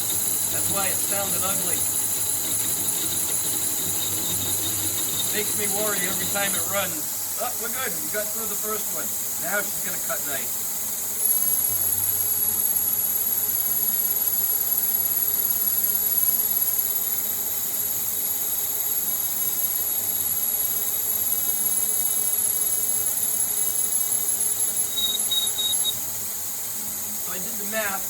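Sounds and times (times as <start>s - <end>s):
lathe cutting with coolant hiss: 0.0s - 17.2s.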